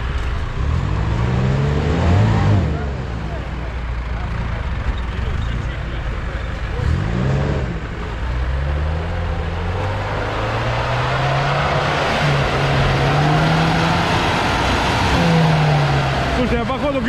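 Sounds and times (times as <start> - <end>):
engine revving: 0.0 - 17.0.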